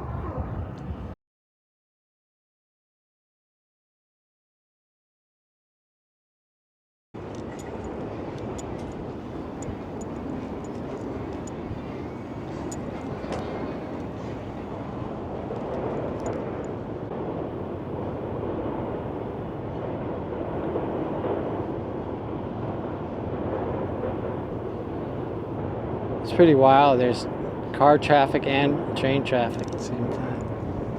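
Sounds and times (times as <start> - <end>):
train and cars crossing bridge: 7.2 - 30.9.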